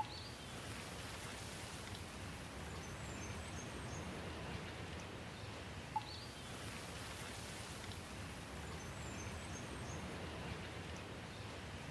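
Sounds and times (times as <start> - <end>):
faint high bird chirps: 0.0 - 0.4, 6.0 - 6.4
steady rain: 0.0 - 11.9.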